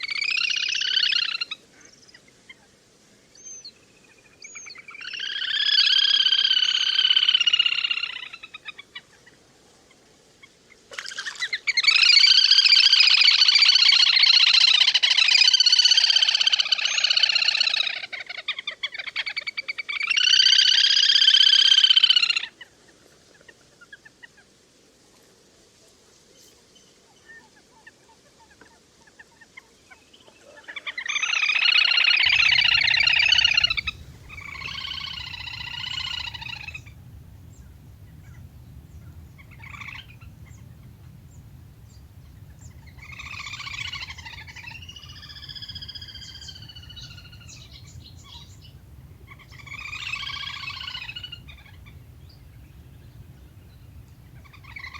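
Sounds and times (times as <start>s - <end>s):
ducks calling: 32.2s - 54.9s.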